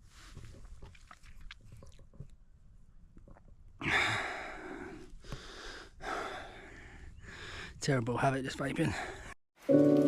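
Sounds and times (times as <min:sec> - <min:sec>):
man exhaling breathily: 0:03.8 - 0:07.7.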